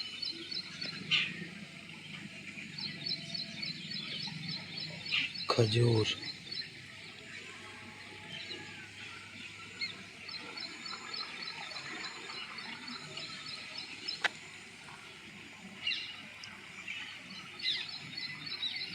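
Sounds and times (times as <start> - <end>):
countryside background hum: 0.0 - 18.9
small birds chirping: 0.0 - 18.9.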